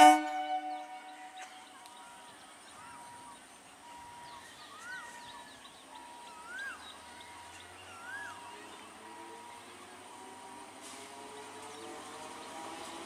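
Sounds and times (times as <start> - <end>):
bird whistled call: 0.0 - 1.5, 7.9 - 8.4.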